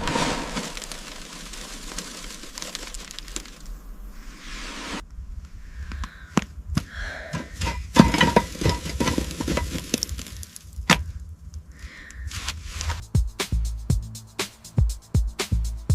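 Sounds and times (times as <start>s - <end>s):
scraping: 0.0s - 5.0s, 6.4s - 11.4s.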